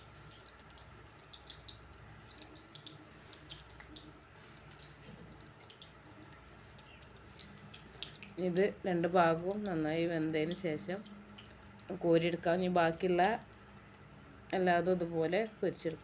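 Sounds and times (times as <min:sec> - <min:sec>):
batter sizzling in hot oil: 0:00.0 - 0:13.3.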